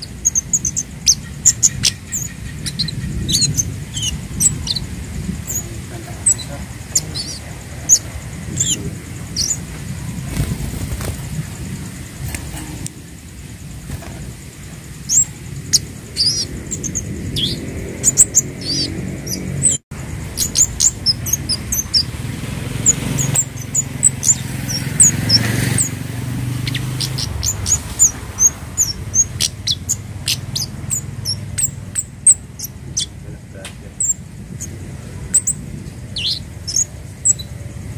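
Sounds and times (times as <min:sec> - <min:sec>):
small bird chirping: 0:00.0 - 0:37.9.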